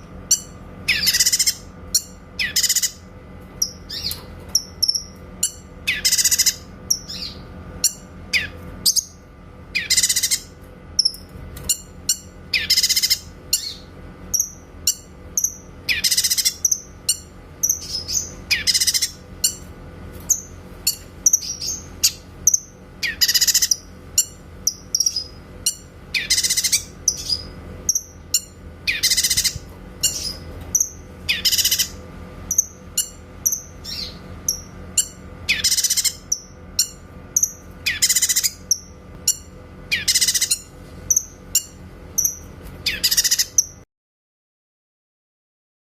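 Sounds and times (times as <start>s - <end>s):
bulbul singing: 0.0s - 19.7s, 20.3s - 43.8s.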